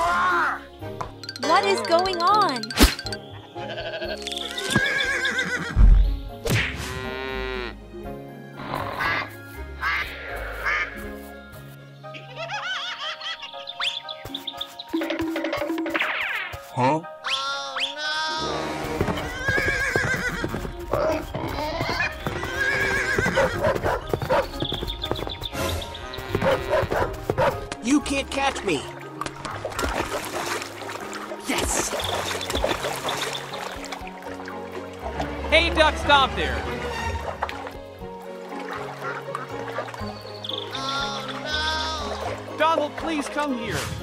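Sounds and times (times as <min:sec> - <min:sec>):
background music: 0:00.0 - 0:44.0
horse whinnying: 0:03.7 - 0:05.8, 0:18.3 - 0:24.5, 0:25.6 - 0:27.1
galloping hoofbeats: 0:18.8 - 0:27.8.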